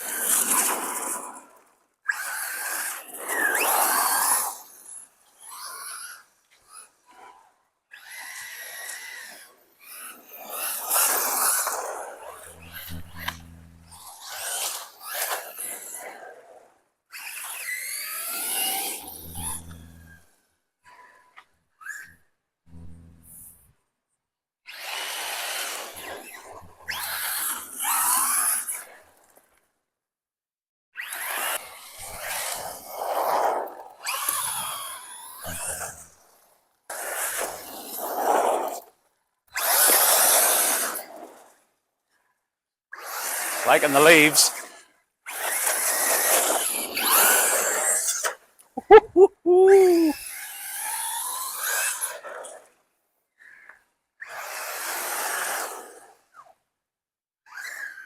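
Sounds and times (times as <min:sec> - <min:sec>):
rc car rushing past: 0:00.0 - 0:23.7, 0:24.7 - 0:29.6, 0:31.0 - 0:39.0, 0:39.6 - 0:41.7, 0:42.9 - 0:48.6, 0:49.7 - 0:56.6, 0:57.5 - 0:58.0
electric motor whining: 0:12.4 - 0:14.3, 0:19.0 - 0:20.3, 0:22.7 - 0:23.6, 0:35.4 - 0:36.1.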